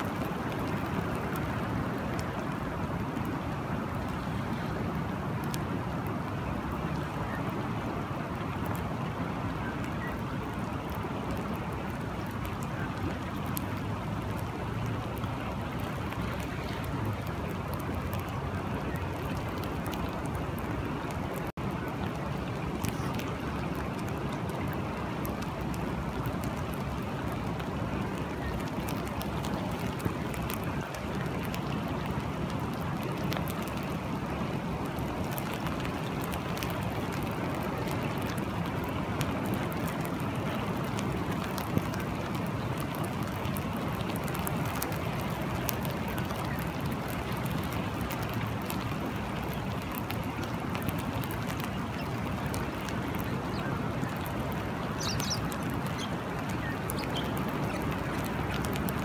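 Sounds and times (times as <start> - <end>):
rain drop ticks: 0.0 - 59.0
steady rain falling: 0.0 - 59.0.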